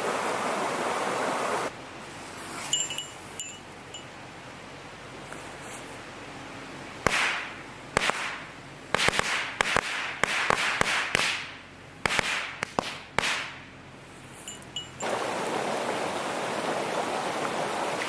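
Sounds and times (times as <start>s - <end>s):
sharp ringing knocks: 14.5s - 15.1s.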